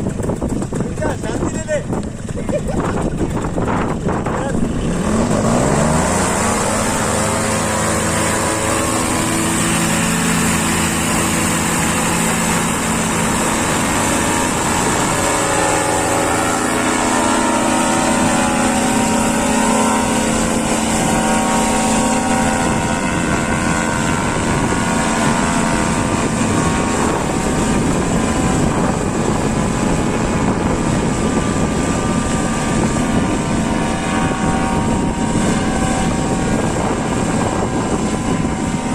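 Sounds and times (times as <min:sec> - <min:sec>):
paramotor engine revving: 0:00.0 - 0:38.9.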